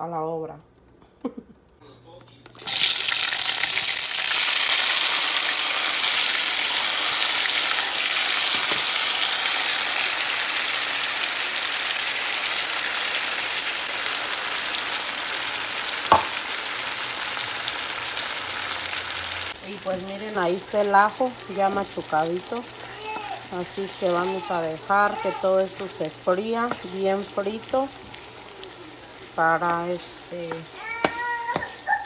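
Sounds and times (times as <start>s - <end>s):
vegetables sizzling in oil: 2.6s - 32.0s.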